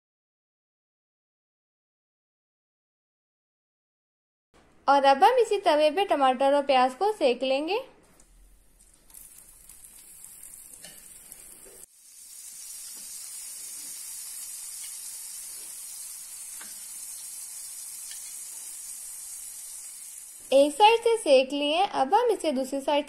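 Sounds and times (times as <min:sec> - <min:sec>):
vegetables sizzling in hot oil: 0:08.2 - 0:21.3
metal utensil tapping pan: 0:18.0 - 0:18.4.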